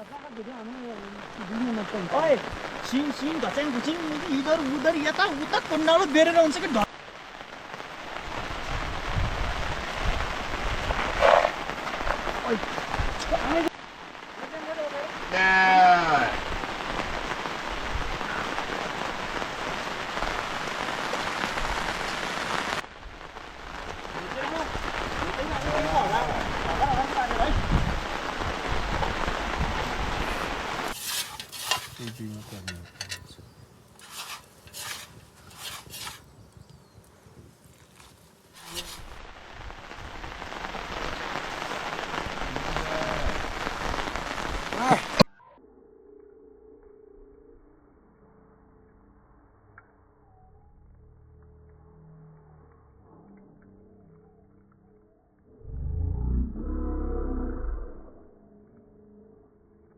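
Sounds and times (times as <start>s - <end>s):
steady rain falling: 0.0s - 33.2s, 33.9s - 45.3s.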